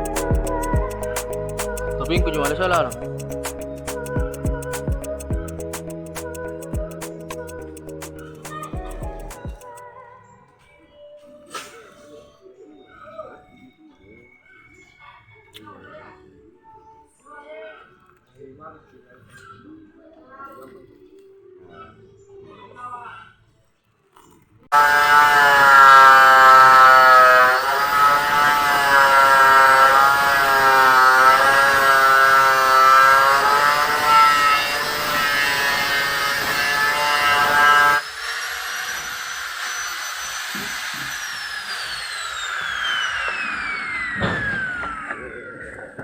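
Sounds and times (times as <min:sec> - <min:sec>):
power tool running: 0:00.0 - 0:09.7, 0:24.7 - 0:46.0
tool spinning down whine: 0:24.7 - 0:46.0.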